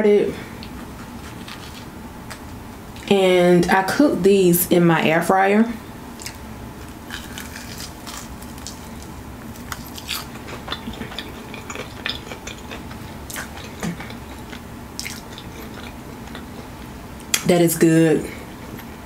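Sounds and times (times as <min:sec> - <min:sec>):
crunching chicken wing: 0:06.2 - 0:16.9.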